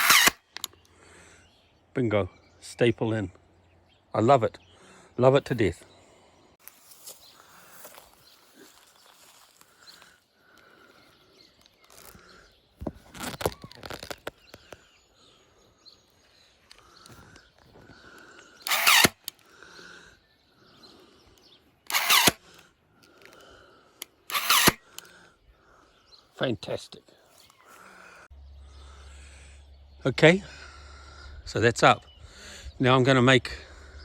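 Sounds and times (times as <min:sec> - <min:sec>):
electric stapler firing: 0:18.7 - 0:19.2.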